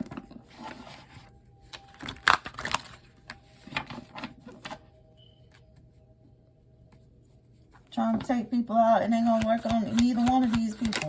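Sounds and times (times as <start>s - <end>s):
cards rustling and flicking: 9.2s - 11.0s.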